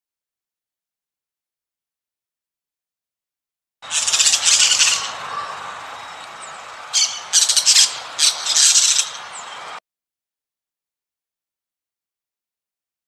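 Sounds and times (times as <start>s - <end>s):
harsh bird squawks: 3.8s - 9.6s.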